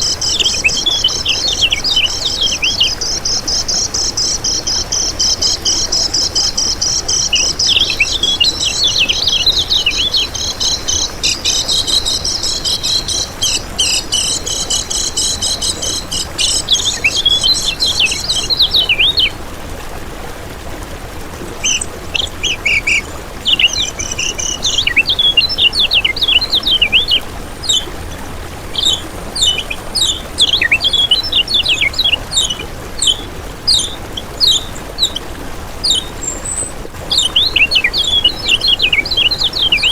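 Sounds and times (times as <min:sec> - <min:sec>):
songbird chirping and trilling: 0:00.0 - 0:19.4, 0:21.4 - 0:39.9.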